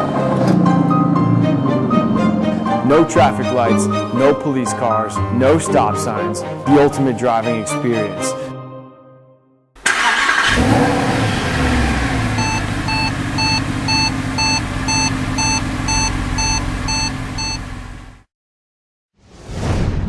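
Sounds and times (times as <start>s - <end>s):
vehicle engine running: 9.9s - 18.3s.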